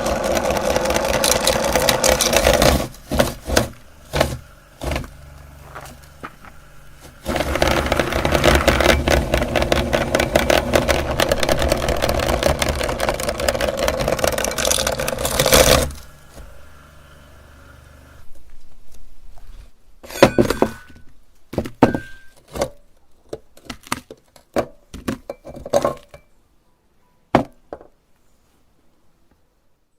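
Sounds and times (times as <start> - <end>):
meat grinder crushing candy: 0.0 - 18.2.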